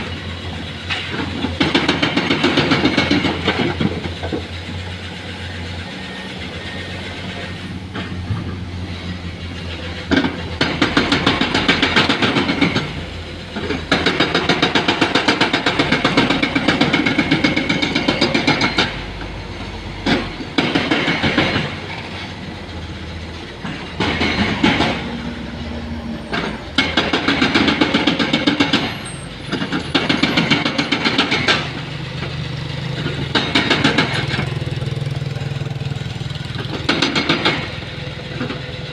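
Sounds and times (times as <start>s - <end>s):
diesel engine running: 0.0s - 38.9s
hydraulic breaker hammering rock: 0.9s - 4.5s, 10.0s - 19.0s, 20.0s - 21.9s, 23.6s - 25.1s, 26.3s - 32.3s, 33.0s - 35.7s, 36.3s - 38.7s.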